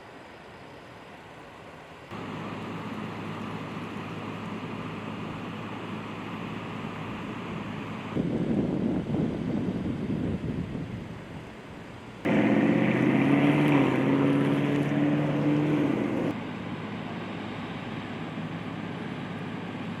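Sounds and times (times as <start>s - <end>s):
low outdoor hum: 0.0s - 20.0s
engine running: 2.1s - 8.5s, 12.0s - 20.0s.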